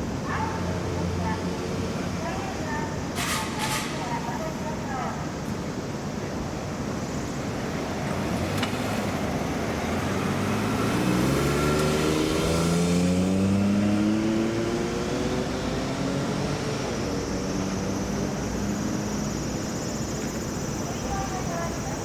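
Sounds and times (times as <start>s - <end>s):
road traffic noise: 0.0s - 22.0s
vehicle engine accelerating: 7.5s - 20.8s.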